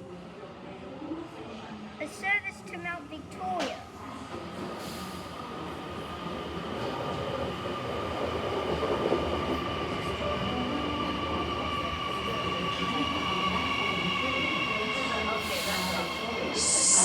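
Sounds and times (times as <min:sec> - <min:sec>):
electric train approaching: 0:07.4 - 0:17.0
high whine of held tones: 0:16.5 - 0:17.0.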